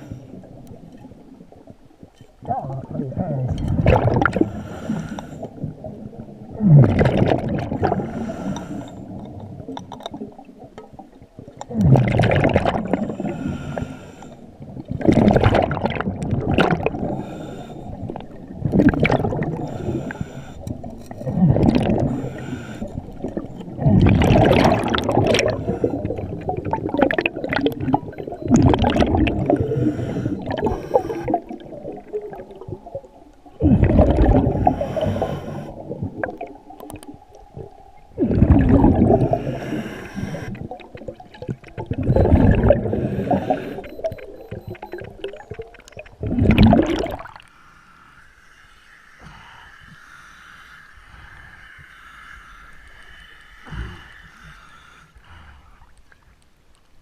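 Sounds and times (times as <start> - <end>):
gurgling exhaled bubbles: 2.4 - 13.8, 14.6 - 47.5
diver inhaling through regulator: 4.3 - 5.6, 7.8 - 9.2, 12.9 - 14.5, 16.9 - 18.4, 19.2 - 21.1, 21.7 - 23.6, 24.5 - 27.0, 28.3 - 31.6, 33.7 - 36.0, 38.2 - 40.9, 42.1 - 44.8, 47.4 - 55.9.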